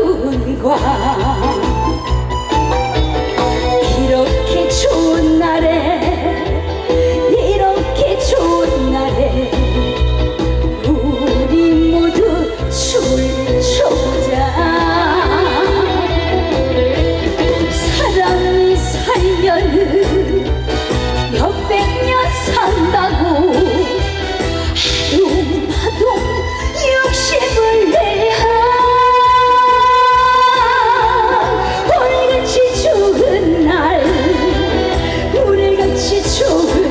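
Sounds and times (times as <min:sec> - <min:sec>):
band with pulsing beat: 0:00.0 - 0:36.9
woman singing: 0:00.0 - 0:36.9.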